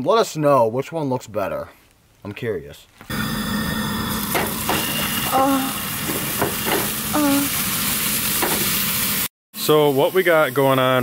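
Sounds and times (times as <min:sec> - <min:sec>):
hot dogs sizzling in a pan: 0:03.1 - 0:11.0
light knocks in pan: 0:08.4 - 0:08.7.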